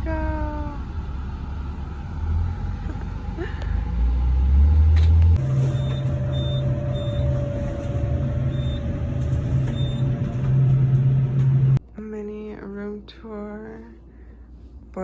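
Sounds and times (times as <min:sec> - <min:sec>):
vehicle engine humming: 0:00.0 - 0:11.9.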